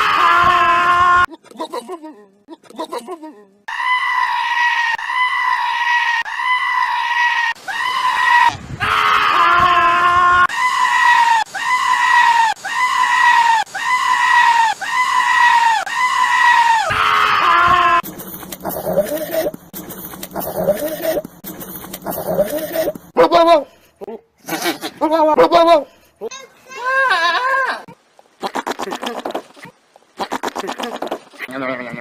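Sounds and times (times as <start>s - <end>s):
lower rough goat bleat: 28.4s - 32.0s.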